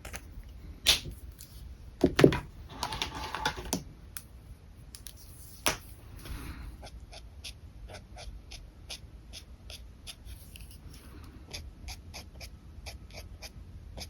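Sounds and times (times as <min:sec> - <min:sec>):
marker scratching on paper: 0:06.8 - 0:14.0.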